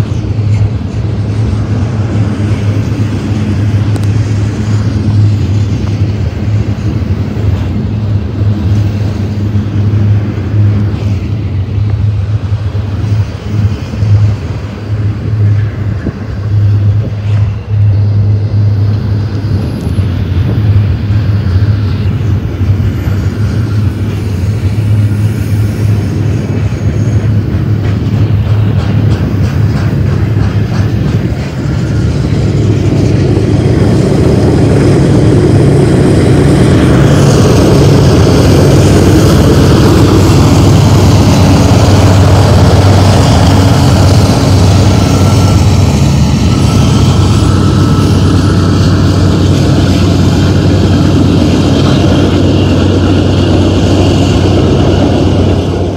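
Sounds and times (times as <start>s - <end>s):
diesel locomotives droning: 0.0s - 55.9s
train cars rolling on rails: 0.0s - 55.9s.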